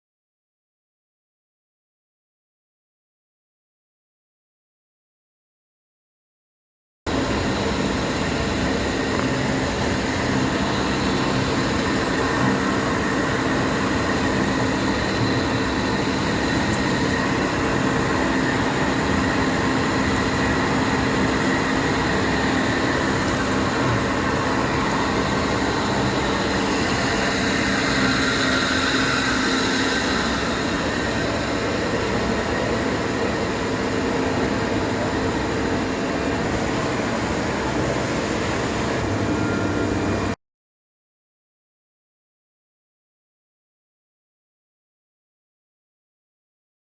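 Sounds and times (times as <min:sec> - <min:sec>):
band saw humming and whining: 0:07.1 - 0:40.4.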